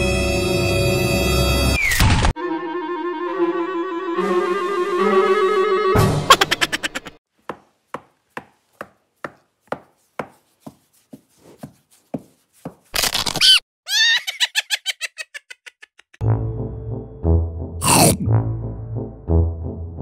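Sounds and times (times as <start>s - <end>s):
soft regular taps: 7.4s - 12.9s.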